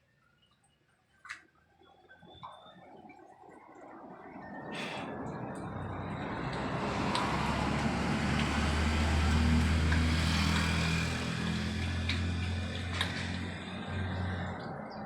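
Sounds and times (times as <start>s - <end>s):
vehicle engine humming: 4.9s - 15.0s.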